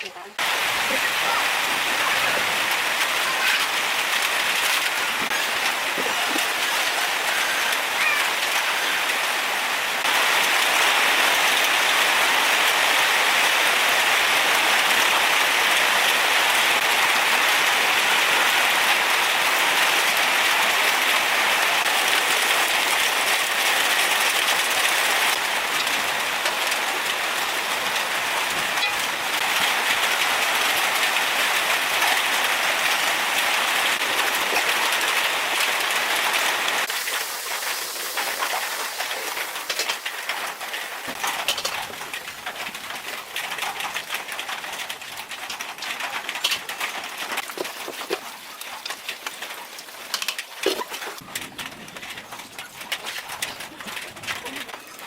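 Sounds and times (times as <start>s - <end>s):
rain falling: 0.0s - 55.0s
raindrop ticks: 21.8s - 55.0s.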